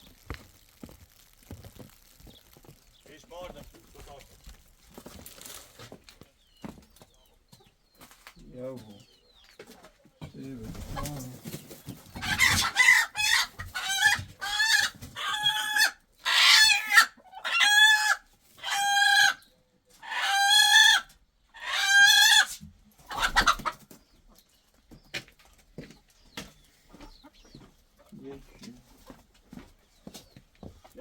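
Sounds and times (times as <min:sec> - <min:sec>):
chicken squawking: 0:12.1 - 0:23.8.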